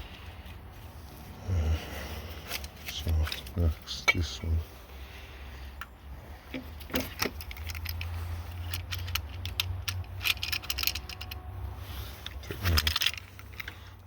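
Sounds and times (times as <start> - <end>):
metallic clicks of hand tools: 6.5 - 11.5.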